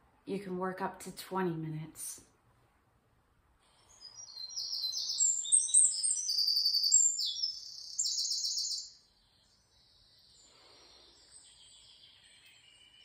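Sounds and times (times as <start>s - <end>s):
songbird trilling: 3.9s - 9.0s.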